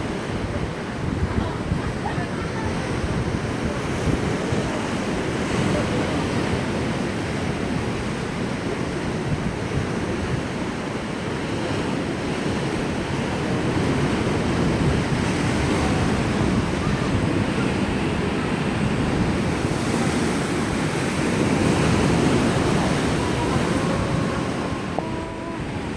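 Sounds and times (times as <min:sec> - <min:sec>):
sea waves washing onto shore: 0:00.0 - 0:25.9.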